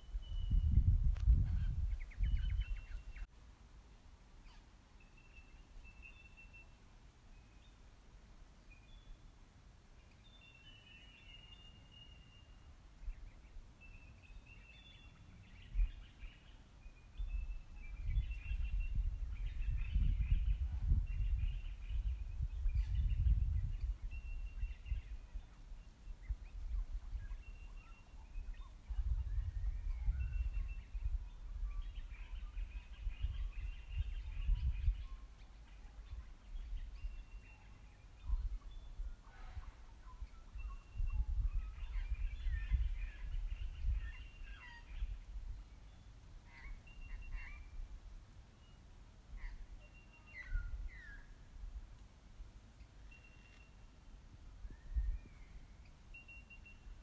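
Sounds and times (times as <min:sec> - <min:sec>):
wild birds chirping: 0:00.0 - 0:03.3, 0:10.0 - 0:47.9, 0:48.6 - 0:51.5.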